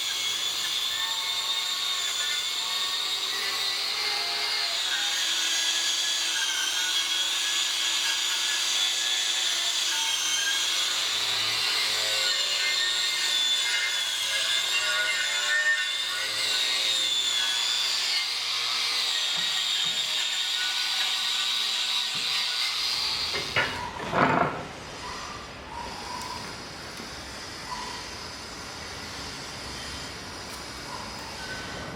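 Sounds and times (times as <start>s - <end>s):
power tool whining: 0.0s - 31.9s.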